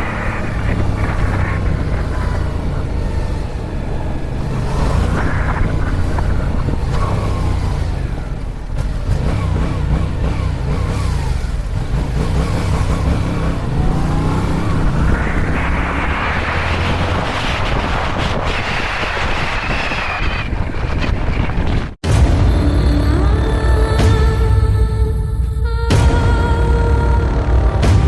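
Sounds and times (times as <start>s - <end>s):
wind rush: 0.0s - 10.2s, 11.1s - 22.8s
motorcycle engine running: 0.0s - 21.9s.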